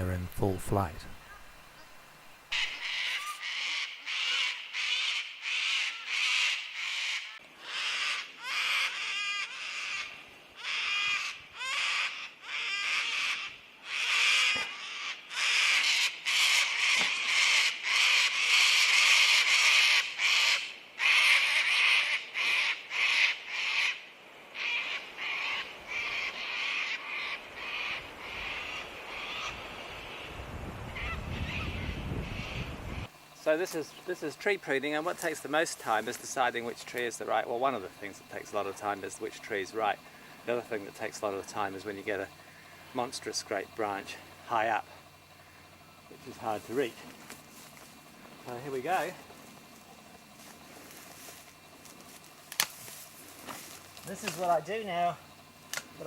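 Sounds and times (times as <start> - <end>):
cockatoos screeching: 2.5 - 24.0, 24.6 - 30.3.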